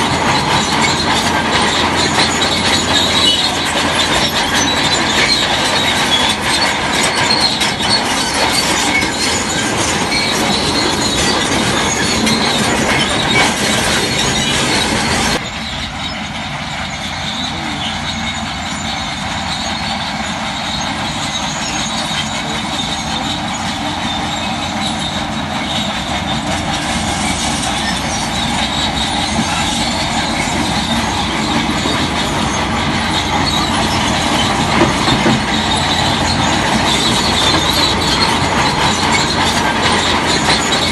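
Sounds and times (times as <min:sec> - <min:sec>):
bulldozer engine: 0:00.0 - 0:40.9
steel tracks squealing and clanking: 0:00.0 - 0:40.9.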